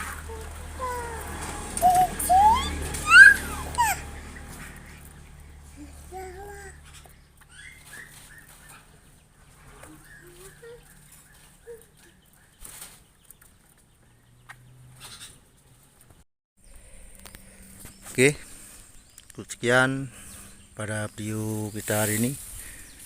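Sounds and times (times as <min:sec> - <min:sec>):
lower bird calls: 0:00.0 - 0:13.4.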